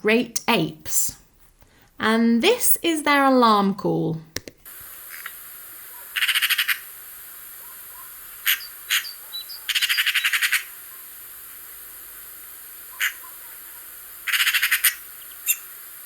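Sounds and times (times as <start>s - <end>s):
steady hiss: 4.6s - 16.0s
magpie rattling alarm call: 6.2s - 6.9s, 7.9s - 10.8s, 12.9s - 13.4s, 14.3s - 15.6s
faint bird chirps: 8.0s - 11.0s.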